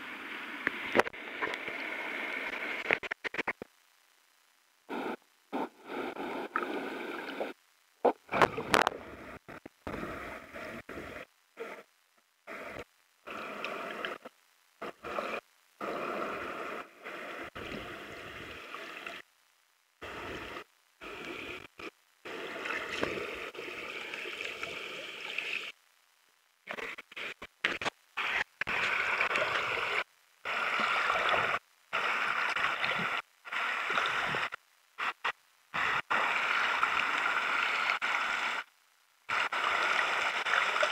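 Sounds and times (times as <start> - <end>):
rushing gurgling water: 22.3 - 25.7, 28.2 - 35.2, 39.3 - 40.9.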